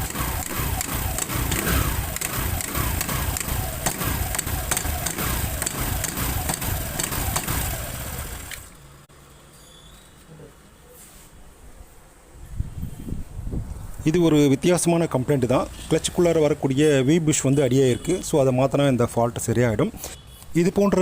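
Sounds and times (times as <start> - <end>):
scooter engine running: 0.0 - 8.8.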